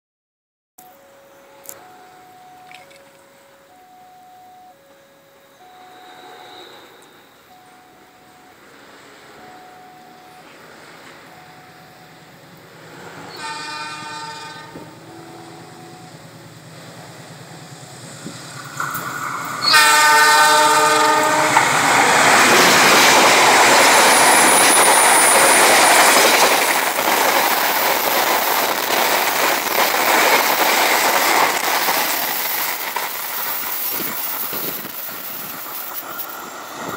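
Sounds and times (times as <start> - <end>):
diesel locomotive horn: 4.7 - 8.4, 12.8 - 16.3, 19.6 - 26.0
train wheels rumbling on rails: 8.6 - 36.9.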